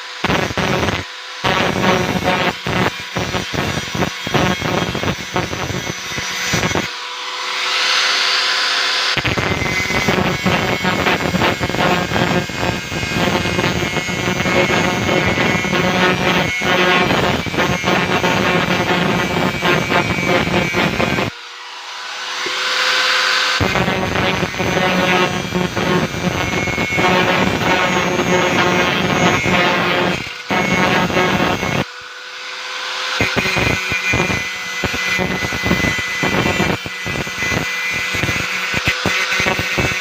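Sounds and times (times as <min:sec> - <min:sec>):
angle grinder on steel: 0:00.0 - 0:40.0.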